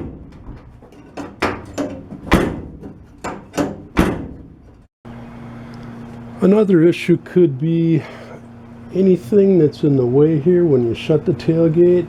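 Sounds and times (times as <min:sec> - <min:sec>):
tailgate slamming shut: 0:00.0 - 0:00.6, 0:01.4 - 0:04.6
metal latch clacks: 0:00.0 - 0:04.8
steady low hum: 0:01.8 - 0:12.0.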